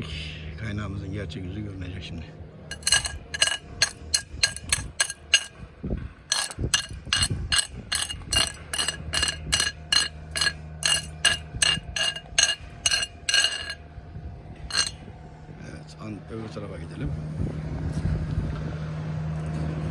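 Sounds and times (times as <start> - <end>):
hammer tapping metal weld: 2.7 - 5.6, 6.3 - 13.8.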